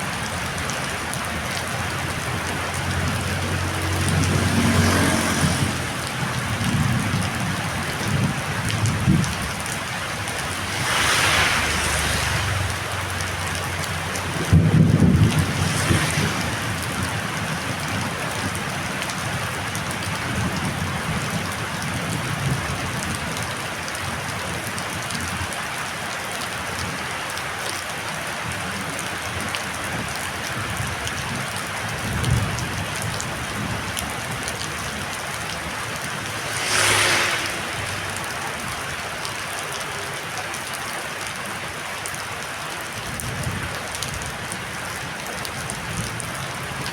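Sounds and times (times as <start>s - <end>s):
heavy rain falling: 0.0s - 46.9s
short whoosh: 10.5s - 12.8s, 36.2s - 38.4s.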